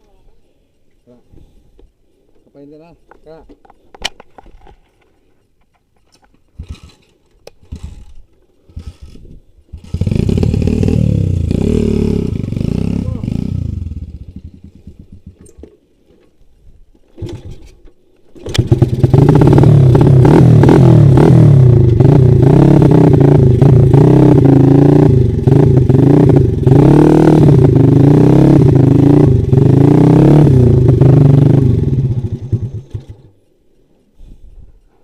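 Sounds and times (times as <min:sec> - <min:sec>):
dirt bike engine revving: 0:09.8 - 0:15.4, 0:18.5 - 0:33.3.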